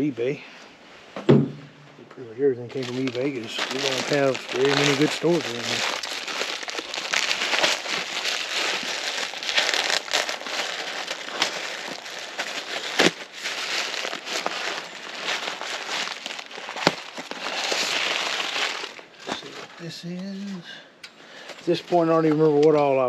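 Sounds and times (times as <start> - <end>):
packaging crinkling and rustling: 2.6 - 20.6.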